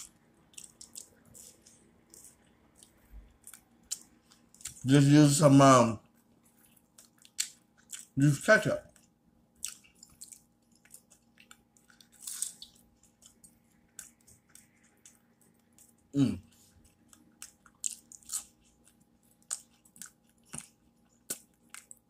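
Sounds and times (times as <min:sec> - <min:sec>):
man chewing food: 0:00.0 - 0:04.9, 0:06.0 - 0:08.2, 0:08.8 - 0:22.0
wet mouth clicks and lip smacks: 0:09.6 - 0:15.9.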